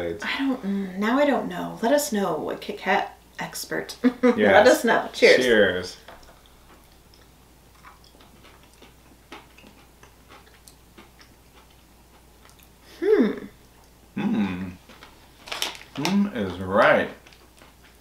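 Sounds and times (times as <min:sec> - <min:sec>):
faint crunching and chewing: 0:06.0 - 0:18.0
people humming approval: 0:14.2 - 0:14.8.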